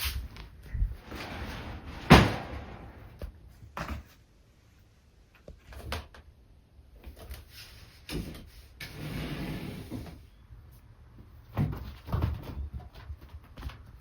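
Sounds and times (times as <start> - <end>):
cats play-fighting and scuffling: 2.9 - 9.0, 9.7 - 14.0.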